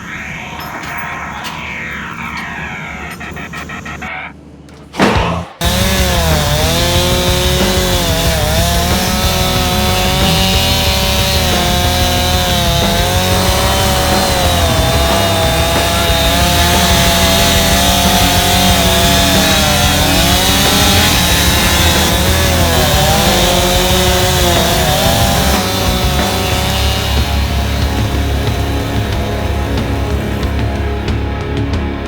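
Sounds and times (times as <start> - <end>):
chainsaw cutting wood: 5.6 - 30.6.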